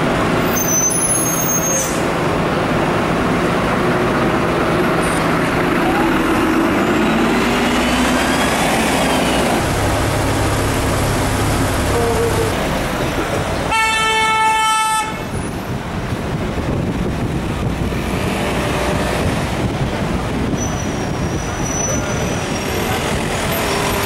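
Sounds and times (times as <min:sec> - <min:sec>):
city street traffic: 0:00.0 - 0:24.0
train running: 0:00.0 - 0:24.0
car horn blast: 0:13.7 - 0:15.3.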